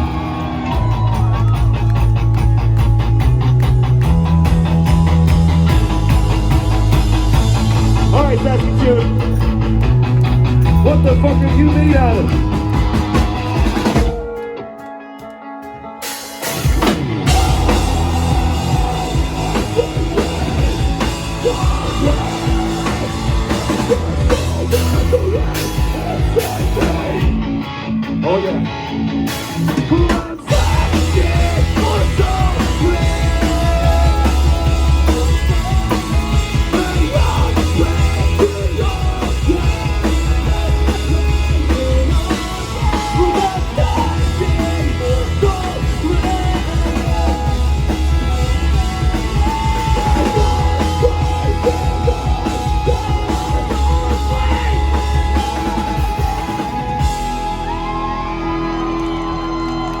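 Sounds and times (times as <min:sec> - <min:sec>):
shouted vocals: 0:00.0 - 0:03.1, 0:17.2 - 0:27.4, 0:29.8 - 1:00.0
live rock band playing: 0:00.0 - 1:00.0.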